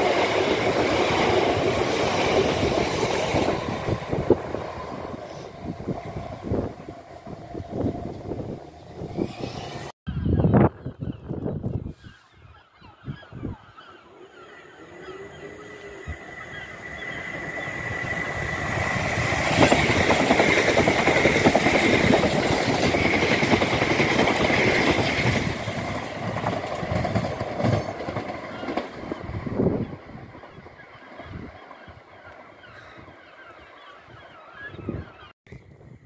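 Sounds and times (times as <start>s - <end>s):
train wheels rushing on rail: 0.0s - 9.9s, 14.9s - 32.4s.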